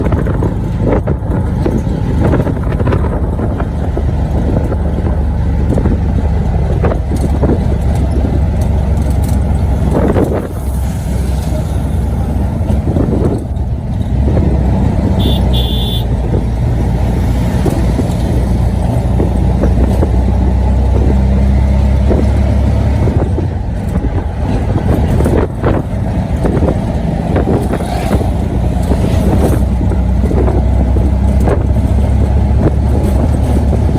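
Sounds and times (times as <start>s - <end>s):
vehicle engine running: 0.0s - 33.9s
short high beep: 15.2s - 16.0s.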